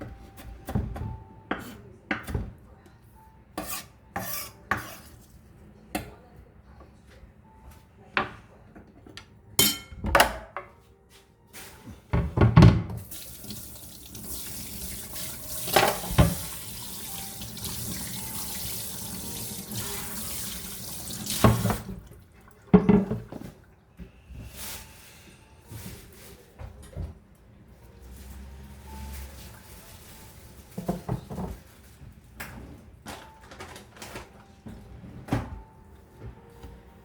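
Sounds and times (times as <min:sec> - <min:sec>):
dishes knocking and clattering: 0:09.6 - 0:10.7, 0:22.7 - 0:23.4
tap running into sink: 0:12.9 - 0:21.9.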